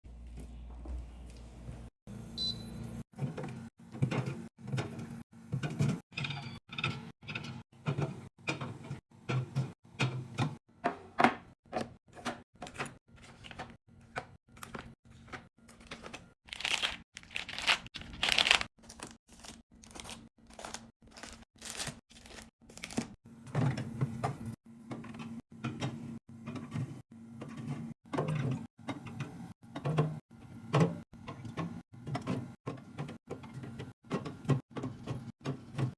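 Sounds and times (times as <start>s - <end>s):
snack packages handled and rustled: 14.5s - 23.2s
packaging crinkling: 15.7s - 23.1s.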